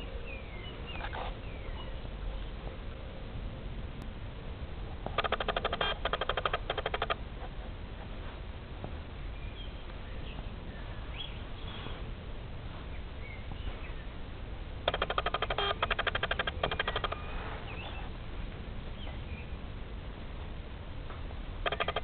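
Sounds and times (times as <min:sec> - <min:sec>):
low steady rumble: 0:00.0 - 0:22.0
bird chattering call: 0:05.1 - 0:07.2, 0:14.8 - 0:18.1, 0:21.6 - 0:22.0.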